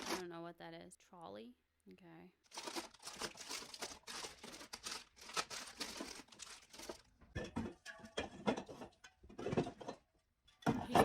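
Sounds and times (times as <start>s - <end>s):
plastic packaging crinkling and tearing: 0.0s - 0.2s, 2.4s - 7.1s.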